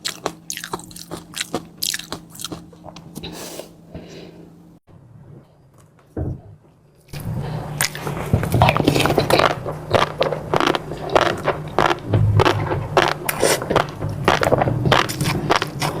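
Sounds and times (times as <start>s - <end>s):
chewing clicks and crunches: 0.0s - 3.2s, 7.8s - 16.0s
low steady hum: 0.0s - 16.0s.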